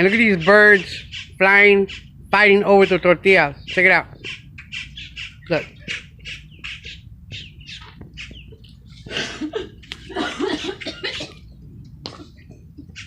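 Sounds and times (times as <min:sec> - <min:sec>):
birds squawking: 0:00.0 - 0:13.0
people laughing: 0:08.6 - 0:11.4.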